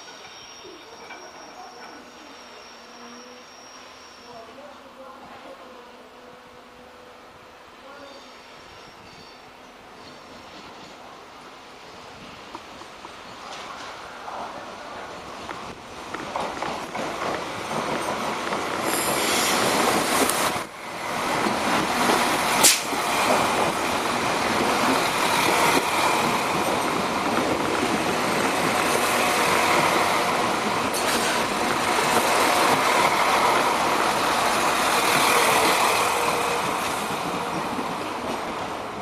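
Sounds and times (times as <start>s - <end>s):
diesel train rumbling past: 9.8s - 39.0s
sharp click: 22.6s - 22.9s.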